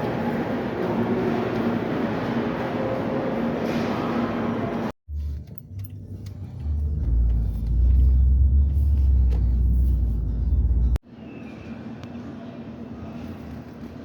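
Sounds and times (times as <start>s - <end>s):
moving vehicle rumble: 5.1s - 11.0s.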